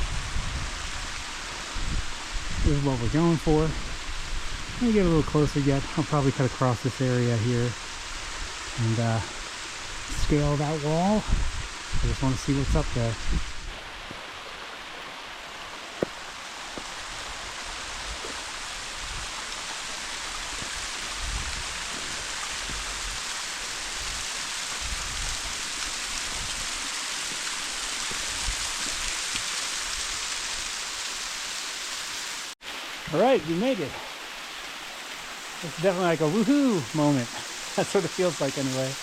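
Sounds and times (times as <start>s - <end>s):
waterfall rushing: 0.0s - 39.0s
low thuds: 14.9s - 17.3s.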